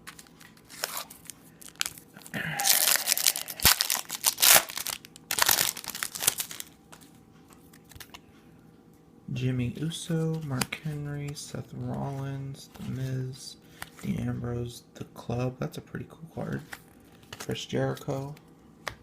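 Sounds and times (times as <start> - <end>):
wrapper ripping and rustling: 0.0 - 6.8.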